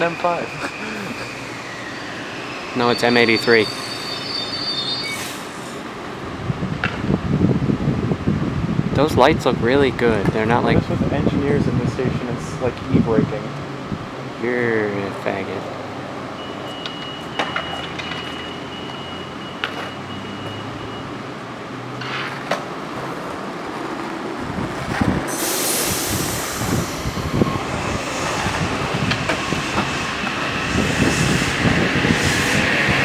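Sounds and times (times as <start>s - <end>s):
train hiss: 0.0s - 5.9s, 25.3s - 33.0s
train wheels rumbling on rail: 0.0s - 15.8s, 22.2s - 33.0s.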